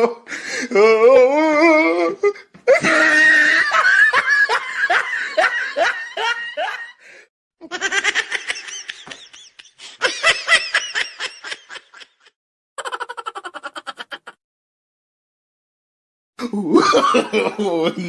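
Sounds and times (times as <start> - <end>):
person laughing: 2.7 - 7.0, 7.6 - 14.4, 16.4 - 18.0.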